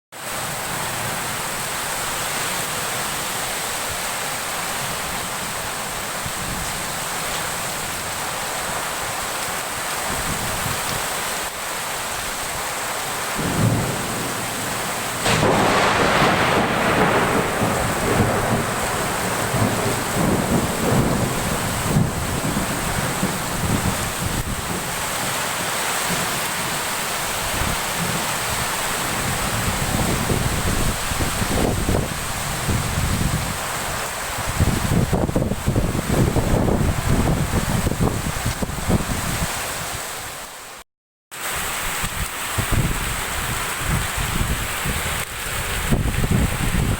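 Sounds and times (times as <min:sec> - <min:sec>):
heavy rain downpour: 0:00.1 - 0:46.9
thunder rumbling: 0:13.4 - 0:25.0, 0:34.4 - 0:39.1.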